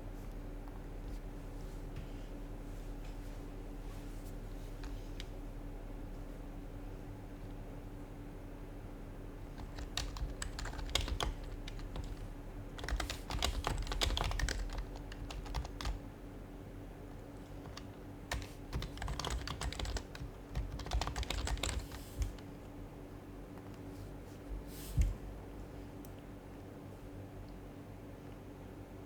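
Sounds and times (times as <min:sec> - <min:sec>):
soft keyboard keystrokes: 0:09.6 - 0:16.0, 0:17.1 - 0:22.8.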